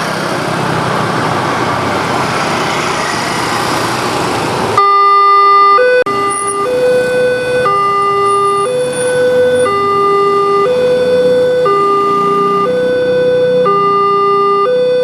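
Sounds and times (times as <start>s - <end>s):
road traffic noise: 0.0s - 15.0s
level crossing two-tone alarm: 4.8s - 15.0s.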